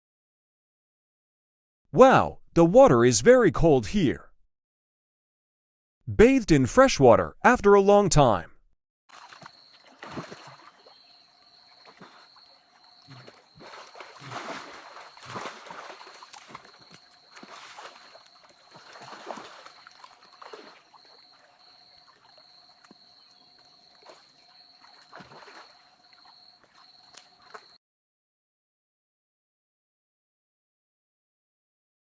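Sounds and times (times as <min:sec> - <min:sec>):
water sloshing and splashing: 0:09.1 - 0:27.8.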